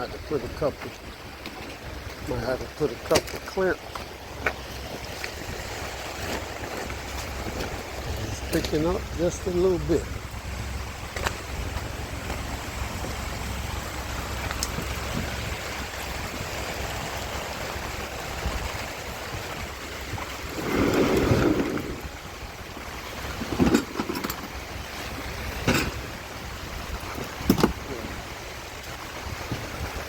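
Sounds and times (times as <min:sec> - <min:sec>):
steady rain falling: 0:00.2 - 0:30.0.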